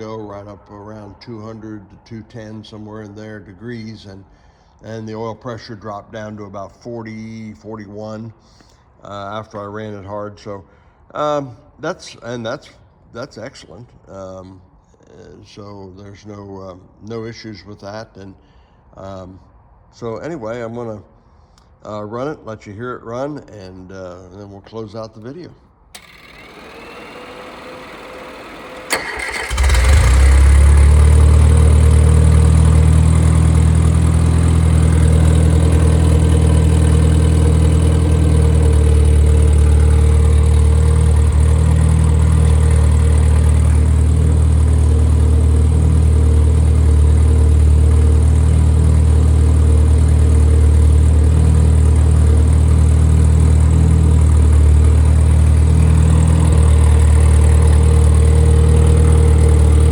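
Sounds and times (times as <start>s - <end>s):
car engine starting and running: 25.9s - 59.9s.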